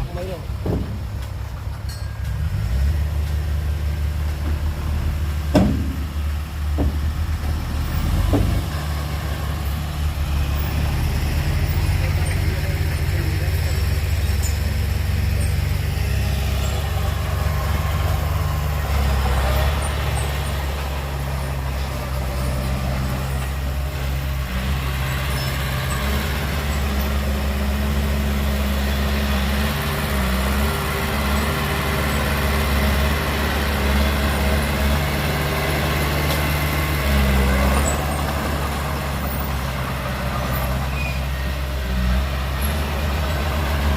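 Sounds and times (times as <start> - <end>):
diesel engine droning: 0.0 - 43.9.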